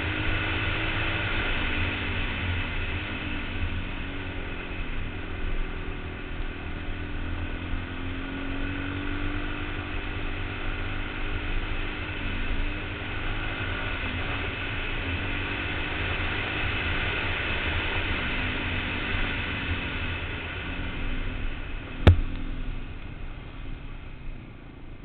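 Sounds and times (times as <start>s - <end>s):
motorcycle engine running: 18.2s - 25.0s.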